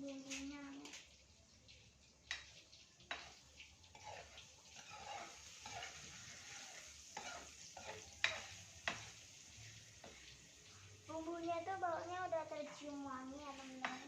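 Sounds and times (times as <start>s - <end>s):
seasoning sizzling in a pan: 0.0s - 14.0s
spatula clinking against pan: 7.2s - 9.1s, 13.6s - 14.0s.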